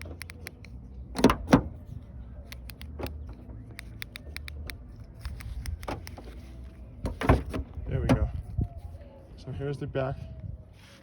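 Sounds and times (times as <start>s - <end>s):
car door handle and latch clicks: 0.0s - 1.8s.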